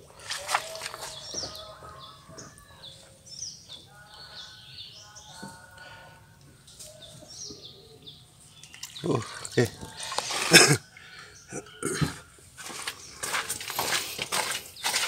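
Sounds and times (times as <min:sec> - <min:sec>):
small birds chirping: 0:00.0 - 0:15.0
water sloshing and dripping: 0:08.5 - 0:11.1.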